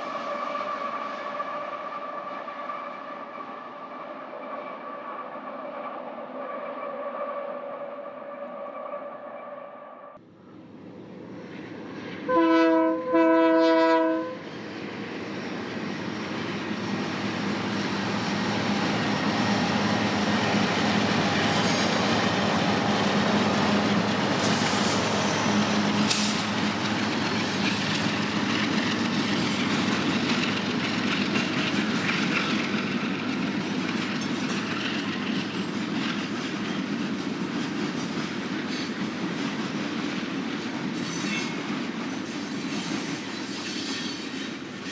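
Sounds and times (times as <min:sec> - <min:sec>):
train passing with wheel clatter: 0:00.0 - 0:44.9
train horn blasts: 0:12.3 - 0:14.4
high wheel squeals: 0:21.4 - 0:22.4, 0:41.0 - 0:44.9.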